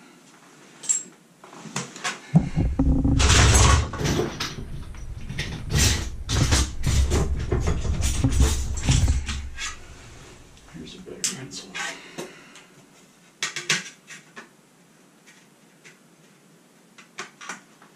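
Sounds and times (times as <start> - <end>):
low rumble: 2.4 - 10.7
objects knocked and rubbed: 2.4 - 10.7.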